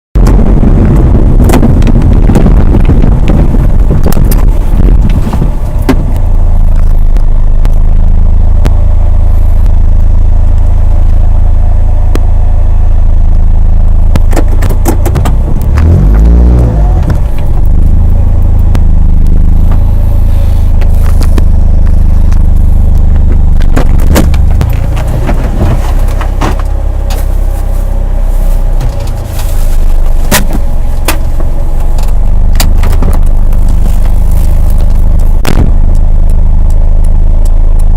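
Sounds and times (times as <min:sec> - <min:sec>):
vehicle engine and road drone: 0:00.0 - 0:37.9
clicks and rattles: 0:14.2 - 0:15.8.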